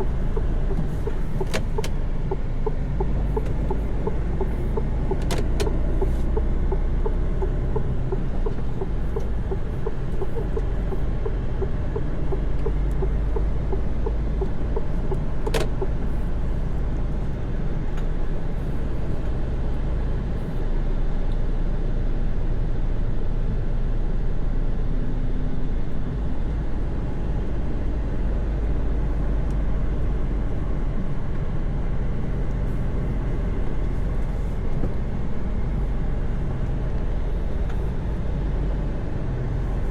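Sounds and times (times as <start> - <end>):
road rumble: 0.0 - 39.9
truck engine drone: 0.0 - 39.9.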